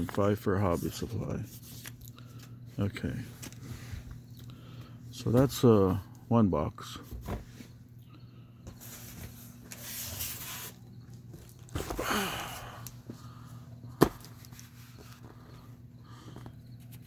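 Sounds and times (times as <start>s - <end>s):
steady low hum: 0.0s - 17.0s
cardboard rustling and scraping: 8.7s - 12.1s, 14.0s - 17.0s.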